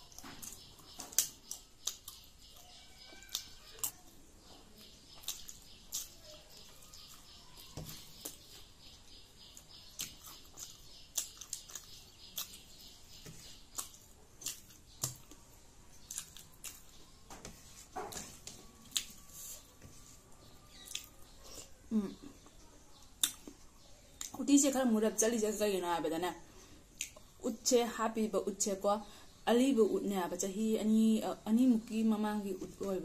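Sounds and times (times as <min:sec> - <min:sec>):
person chewing food: 0:00.0 - 0:24.3.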